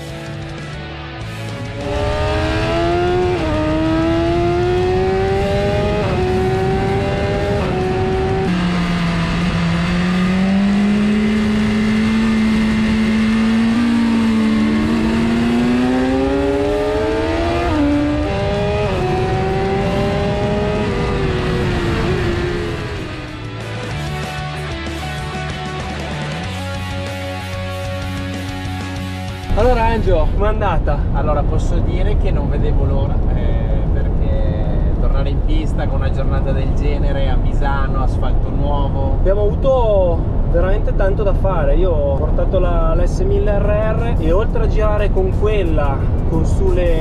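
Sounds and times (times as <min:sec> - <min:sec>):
motorcycle engine revving through gears: 0:01.4 - 0:23.6.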